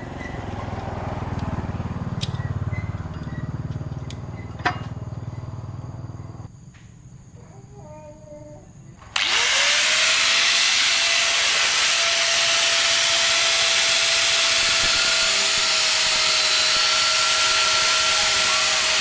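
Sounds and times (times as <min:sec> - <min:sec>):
loud hiss: 0:09.0 - 0:19.0
power tool motor whine: 0:09.0 - 0:19.0.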